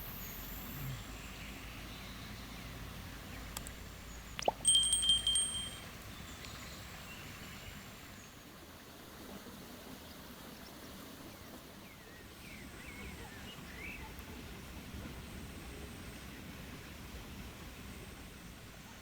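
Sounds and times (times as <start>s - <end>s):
soft background hiss: 0.1s - 7.8s.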